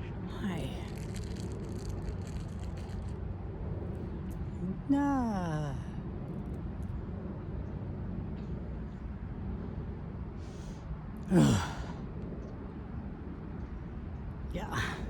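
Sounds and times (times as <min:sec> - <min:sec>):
low background rumble: 0:00.0 - 0:15.0
person sighing: 0:11.3 - 0:12.0.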